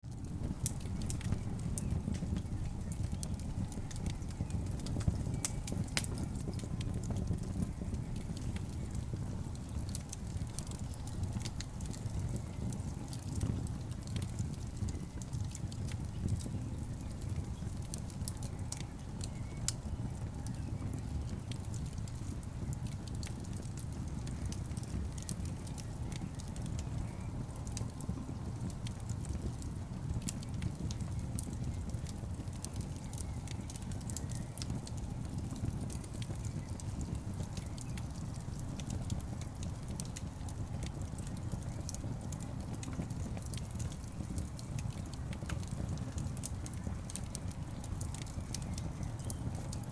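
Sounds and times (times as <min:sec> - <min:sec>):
wood fire crackling: 0:00.0 - 0:49.9
sharp pops from burning logs: 0:00.1 - 0:49.9.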